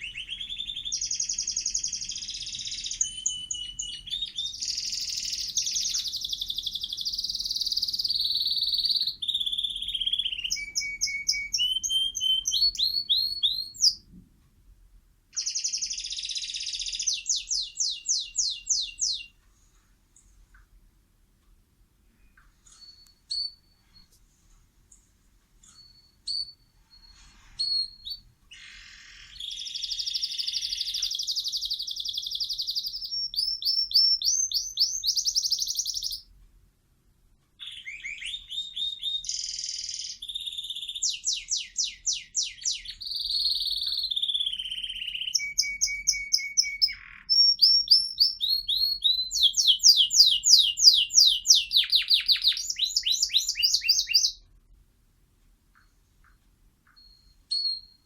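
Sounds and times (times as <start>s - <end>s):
bird singing: 0.0s - 14.0s, 15.3s - 19.4s, 24.9s - 36.3s, 37.6s - 54.4s, 55.7s - 58.0s.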